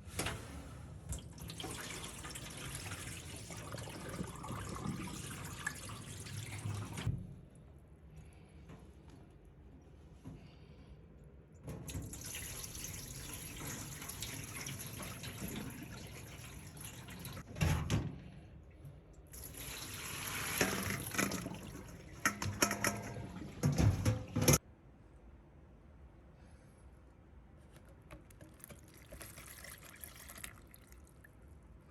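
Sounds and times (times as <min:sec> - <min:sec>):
tap water running into sink: 0:11.9 - 0:17.4, 0:19.4 - 0:24.6
water splashing: 0:28.4 - 0:31.3.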